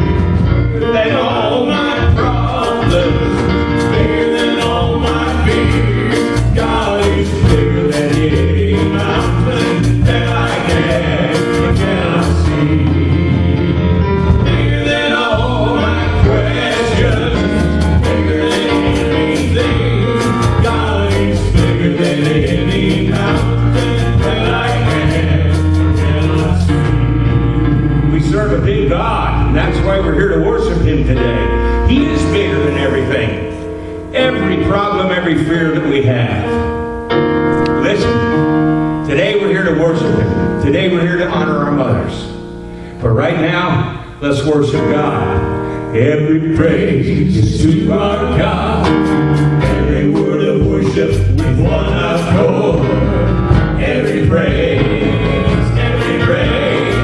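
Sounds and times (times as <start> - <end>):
people singing: 0.0 - 33.4, 46.0 - 57.0
gospel band playing: 0.0 - 57.0.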